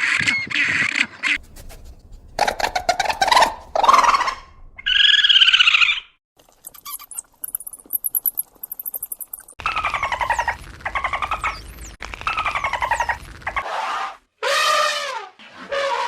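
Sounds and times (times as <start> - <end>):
animal calls: 9.6 - 16.0.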